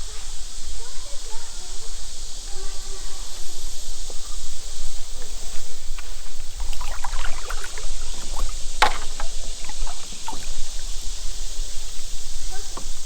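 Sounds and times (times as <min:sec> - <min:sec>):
water splashing and lapping: 0:05.0 - 0:12.2
knocks against boat hull: 0:06.0 - 0:10.8.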